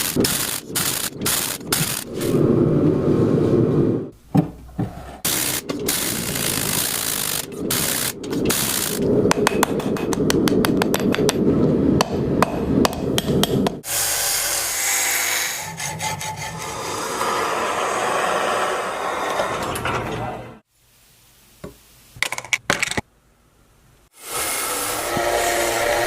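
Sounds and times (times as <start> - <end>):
rasping scraping strokes: 13.8 - 19.8.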